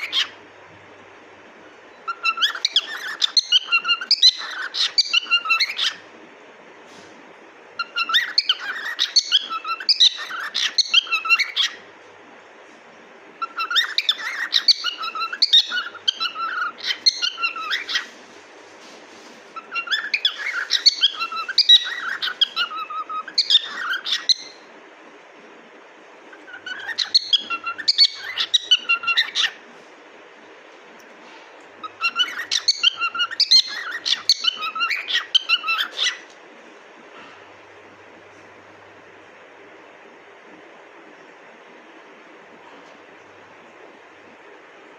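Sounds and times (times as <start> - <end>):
cockatiel chirping and warbling: 0.0 - 0.4, 2.0 - 6.0, 7.8 - 11.8, 13.4 - 18.2, 19.6 - 24.6, 26.3 - 29.6, 31.8 - 36.3.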